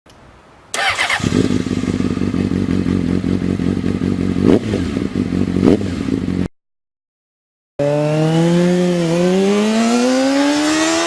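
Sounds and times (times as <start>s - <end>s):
motorcycle engine running: 0.8s - 6.5s.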